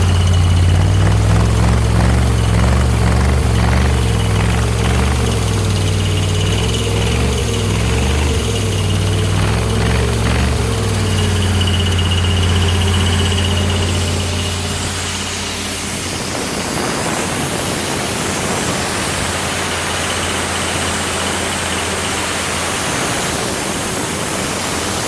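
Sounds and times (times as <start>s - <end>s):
air compressor engine droning: 0.0s - 25.0s.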